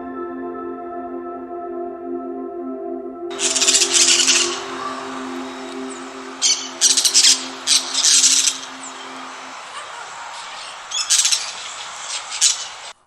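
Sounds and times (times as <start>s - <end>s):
steady low hum: 3.3s - 12.9s
parrot squawking: 3.3s - 13.0s.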